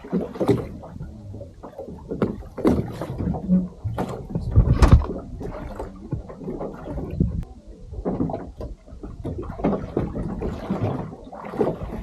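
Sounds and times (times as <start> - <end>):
water slapping against boat hull: 0.0 - 12.0.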